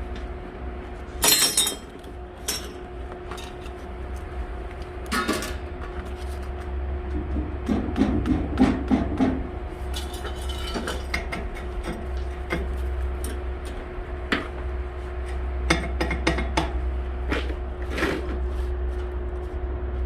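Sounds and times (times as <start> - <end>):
steady low hum: 0.0 - 20.0
steel parts clinking and knocking: 1.2 - 2.8, 9.9 - 12.0.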